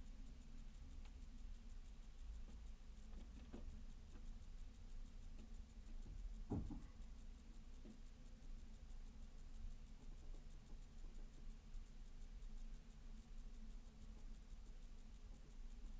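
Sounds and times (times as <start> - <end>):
low steady hum: 0.0 - 15.9
loud knock: 6.5 - 6.9.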